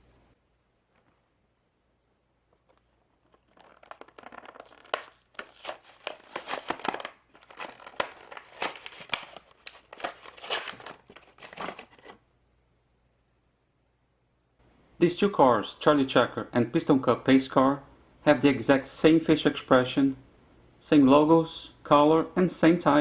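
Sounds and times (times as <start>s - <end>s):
packaging crinkling and clicking: 2.5s - 12.2s.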